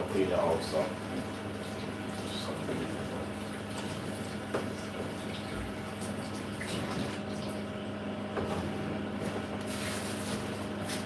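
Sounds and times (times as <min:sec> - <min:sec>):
dishwasher pump humming: 0:00.0 - 0:11.0
water spraying and sloshing: 0:01.0 - 0:07.7, 0:09.7 - 0:11.0.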